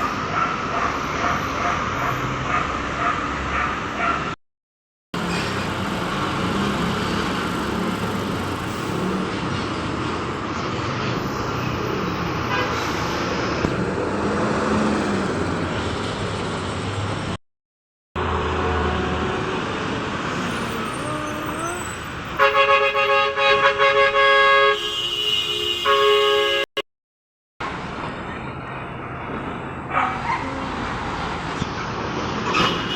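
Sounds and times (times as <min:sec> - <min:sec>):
traffic rumble: 0:00.0 - 0:04.4, 0:05.2 - 0:17.4, 0:18.2 - 0:25.2, 0:27.6 - 0:32.9
vehicle horn blasts: 0:22.4 - 0:26.8.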